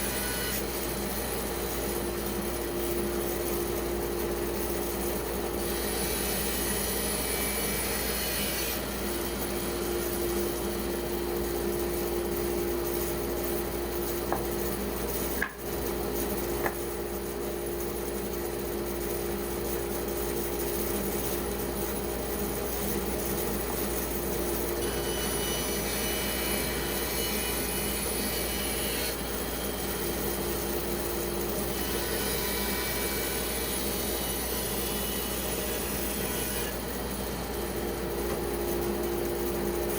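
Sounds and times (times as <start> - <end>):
band saw motor hum: 0.0 - 18.9, 22.8 - 39.9.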